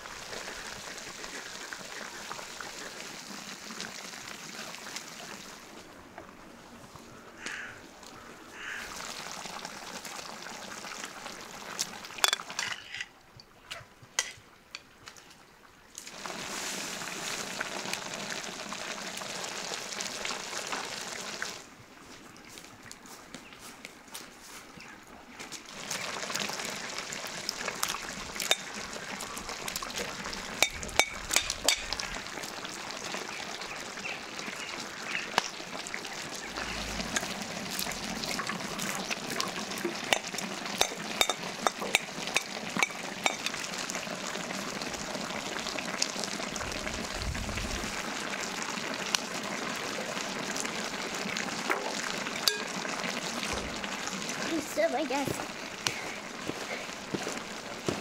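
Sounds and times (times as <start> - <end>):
oil popping and crackling: 7.4 - 12.9, 16.0 - 21.7, 25.4 - 58.0
food sizzling in hot oil: 16.0 - 21.6, 25.7 - 56.4.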